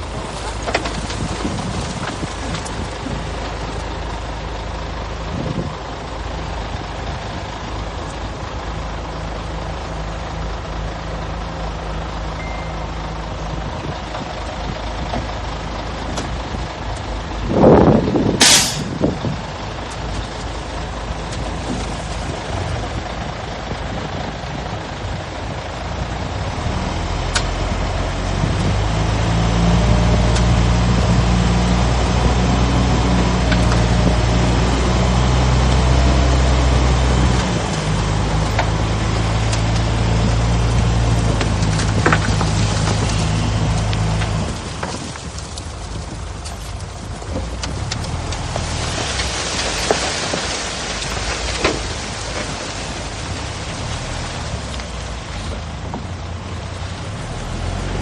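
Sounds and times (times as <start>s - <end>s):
heavy diesel engines running: 0.0s - 58.0s
air brake hiss: 18.4s - 18.9s.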